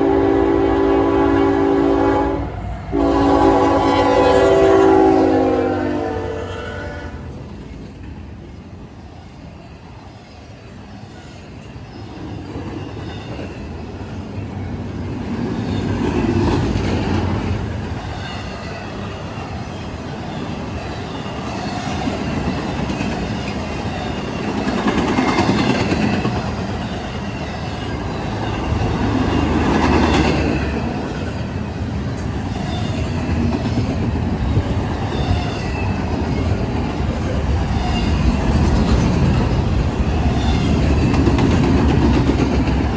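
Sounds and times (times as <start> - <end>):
train wheels clattering over rails: 11.6 - 42.9.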